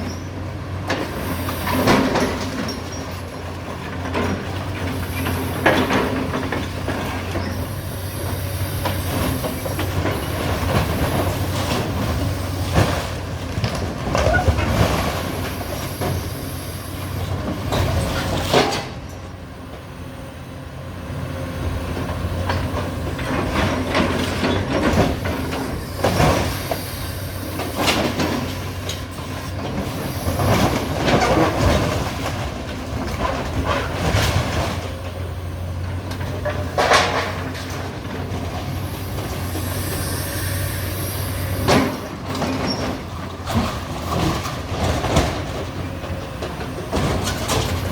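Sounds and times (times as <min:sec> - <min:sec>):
excavator diesel engine running: 0:00.0 - 0:47.9
debris crashing and clattering: 0:09.4 - 0:16.3, 0:27.6 - 0:35.2, 0:35.8 - 0:39.4, 0:41.5 - 0:47.9.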